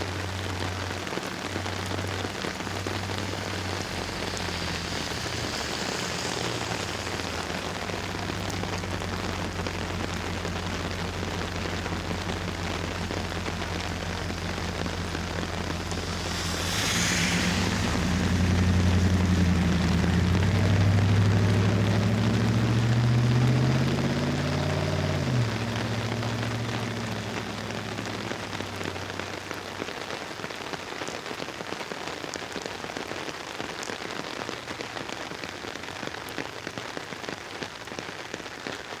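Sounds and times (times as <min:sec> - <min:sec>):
rain pattering on an umbrella: 0:00.0 - 0:39.0
low hum rising in pitch: 0:01.6 - 0:29.5.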